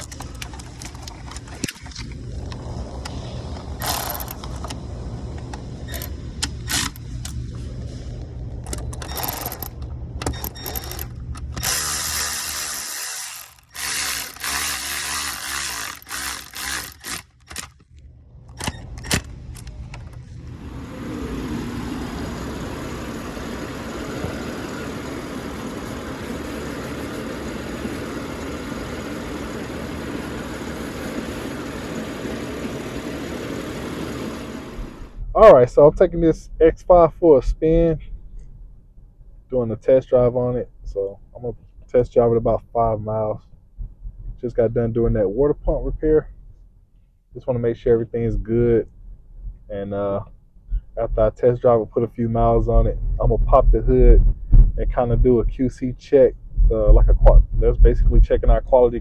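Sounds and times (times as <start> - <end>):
sharp clicks and clunks: 0.0 - 3.2, 3.8 - 7.4, 8.6 - 20.3
low steady hum: 0.0 - 59.0
car engine and road noise: 15.9 - 35.3.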